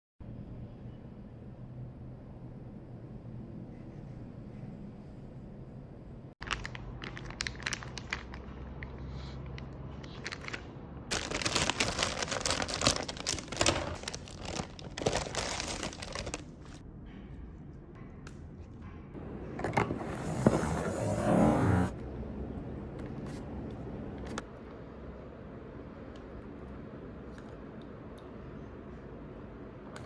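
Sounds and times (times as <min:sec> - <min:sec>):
crinkling and rustling: 0:06.4 - 0:16.8.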